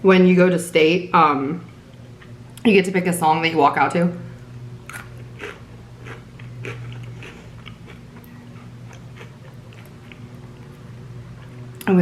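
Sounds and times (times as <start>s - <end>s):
steady low hum: 0.0s - 12.0s
chewing crunchy snacks: 4.8s - 11.9s.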